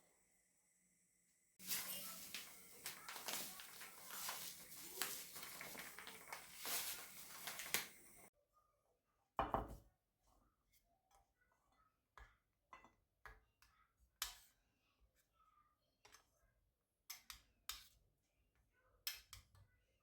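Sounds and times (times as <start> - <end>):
kitchen rustling and clatter: 1.6 - 8.3.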